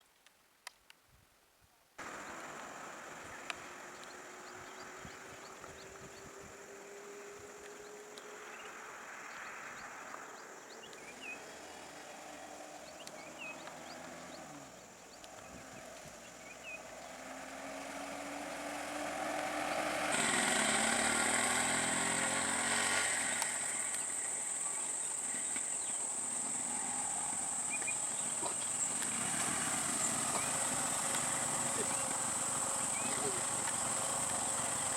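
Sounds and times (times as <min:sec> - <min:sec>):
vehicle engine passing by: 0:02.0 - 0:34.9
faint chirps: 0:22.2 - 0:34.9.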